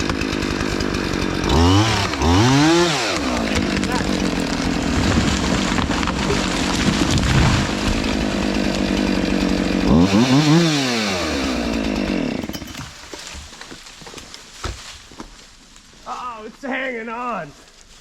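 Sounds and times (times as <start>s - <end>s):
chainsaw running and revving: 0.0s - 13.0s.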